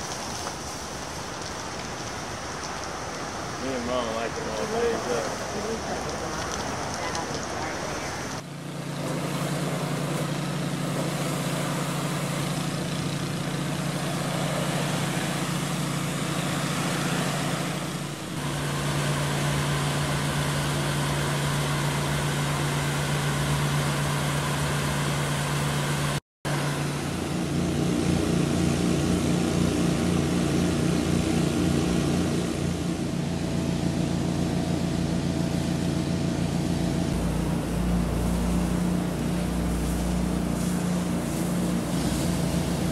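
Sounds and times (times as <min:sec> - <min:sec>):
pressure washer engine running: 0:03.6 - 0:42.9
water spray hissing: 0:09.0 - 0:27.6, 0:37.2 - 0:42.9.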